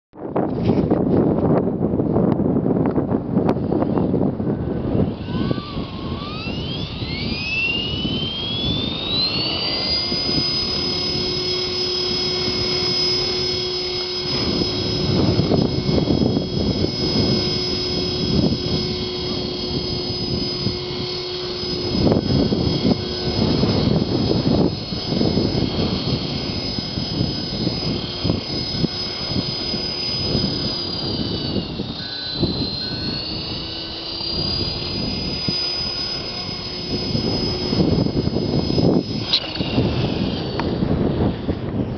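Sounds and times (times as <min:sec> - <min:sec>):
wind buffeting microphone: 0:00.2 - 0:41.9
rc helicopter motor whining: 0:00.3 - 0:41.9.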